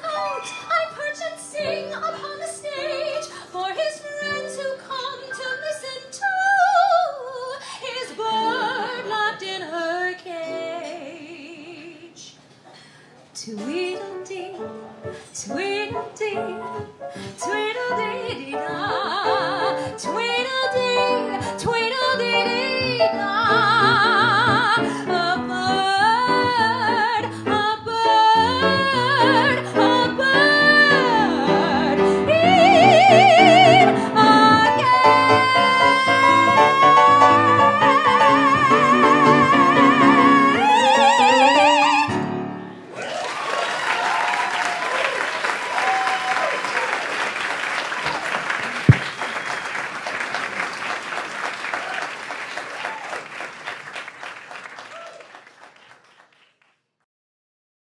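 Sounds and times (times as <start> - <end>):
instrumental accompaniment: 0.0 - 3.3
woman singing operatically: 0.0 - 12.3, 13.4 - 14.8, 15.4 - 42.2.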